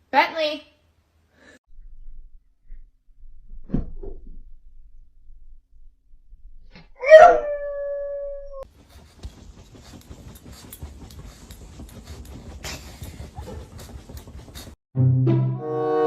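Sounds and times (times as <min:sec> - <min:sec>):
dog howling: 0:07.0 - 0:08.6.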